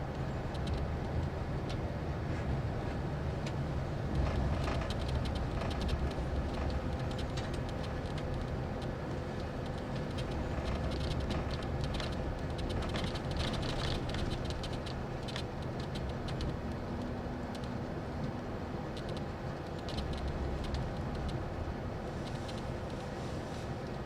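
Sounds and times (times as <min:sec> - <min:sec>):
bus engine and road rumble: 0:00.0 - 0:24.0
interior rattling and clicking: 0:04.1 - 0:16.6.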